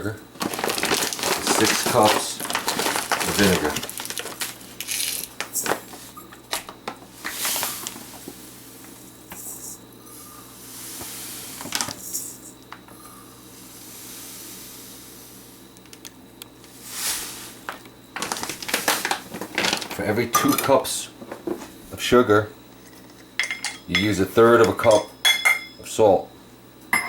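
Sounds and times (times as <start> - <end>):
low steady hum: 0.0 - 27.0
ingredients hissing as poured: 0.6 - 6.1, 7.0 - 15.7, 16.6 - 19.8.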